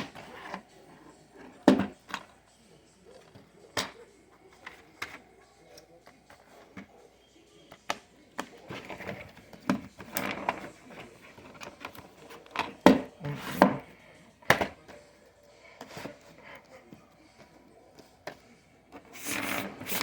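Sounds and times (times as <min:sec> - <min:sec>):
objects being handled: 0:07.7 - 0:20.0.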